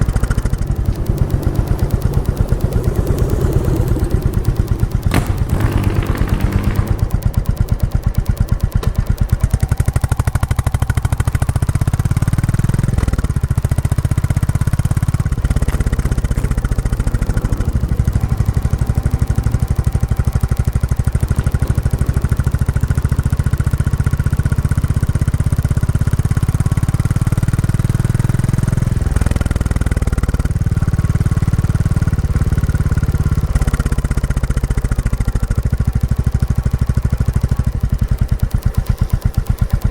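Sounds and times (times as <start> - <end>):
motorcycle engine thumping: 0.0 - 27.0.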